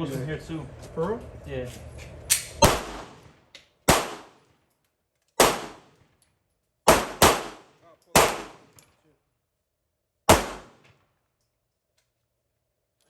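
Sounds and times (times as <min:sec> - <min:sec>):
pistol shots: 0:02.6 - 0:04.4, 0:05.4 - 0:06.0, 0:06.9 - 0:08.8, 0:10.3 - 0:10.9.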